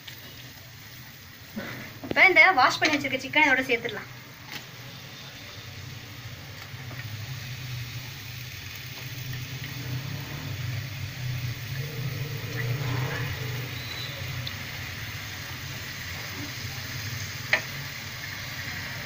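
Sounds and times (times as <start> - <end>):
chicken sizzling in hot oil: 0.0 - 19.0
steady low hum: 9.0 - 17.4.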